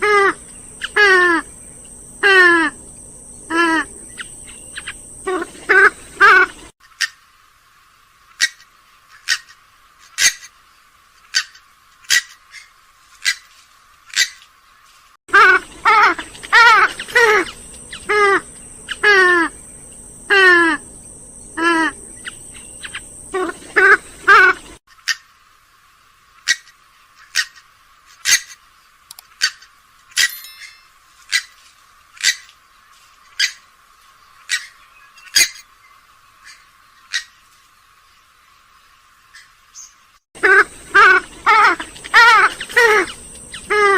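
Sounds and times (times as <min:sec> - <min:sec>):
swamphen short calls: 0:39.4 - 0:43.9.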